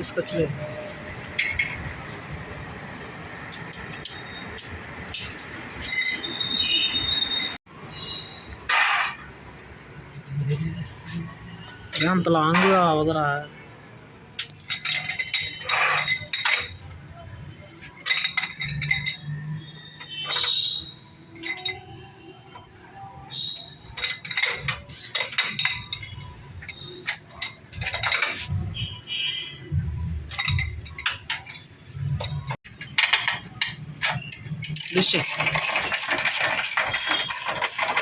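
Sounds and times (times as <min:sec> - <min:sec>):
steel tools clinking on metal: 0:03.4 - 0:07.6, 0:08.6 - 0:09.3, 0:11.9 - 0:13.2, 0:14.4 - 0:22.6, 0:23.3 - 0:28.9, 0:30.2 - 0:38.0.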